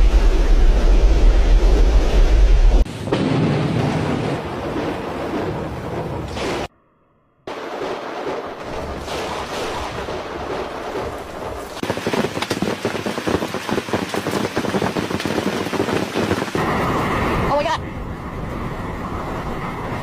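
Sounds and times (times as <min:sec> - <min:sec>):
thunder rumbling: 0:00.0 - 0:06.7, 0:07.5 - 0:20.0
heavy rain: 0:07.5 - 0:17.8.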